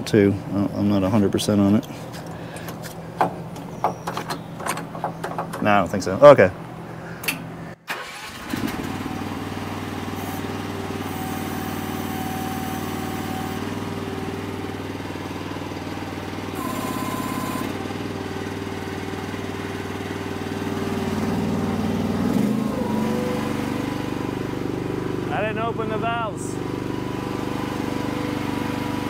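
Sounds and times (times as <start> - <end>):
excavator engine running: 6.6 - 29.0.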